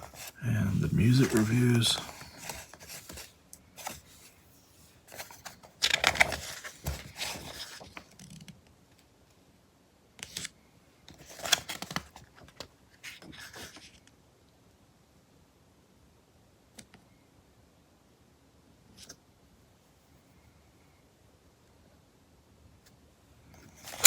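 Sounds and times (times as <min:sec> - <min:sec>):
magazine pages rustling: 0:00.1 - 0:04.3, 0:05.1 - 0:08.0, 0:11.2 - 0:12.5.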